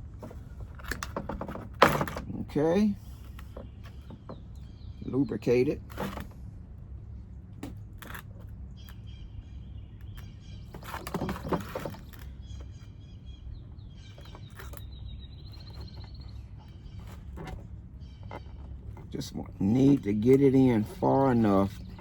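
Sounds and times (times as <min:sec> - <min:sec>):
birds chirping: 0:00.0 - 0:22.0
steady low hum: 0:00.0 - 0:22.0
bird trill: 0:03.6 - 0:05.6, 0:08.7 - 0:11.2, 0:11.9 - 0:19.0.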